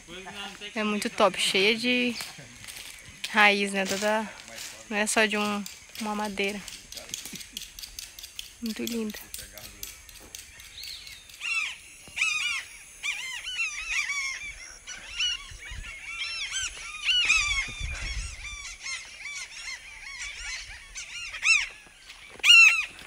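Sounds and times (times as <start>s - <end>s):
flock of birds calling: 0.0s - 23.0s.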